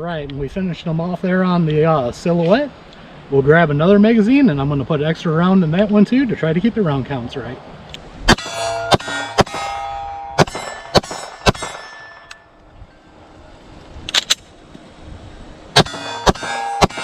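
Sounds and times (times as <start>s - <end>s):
gunshots: 8.3s - 9.8s, 10.4s - 11.9s, 15.8s - 17.0s
steel targets ringing: 8.3s - 13.1s, 15.8s - 17.0s.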